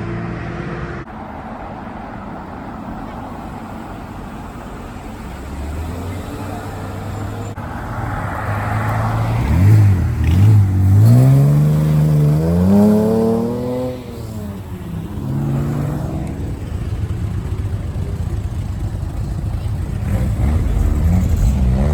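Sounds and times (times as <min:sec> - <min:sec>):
vehicle engine revving: 0:05.2 - 0:21.9.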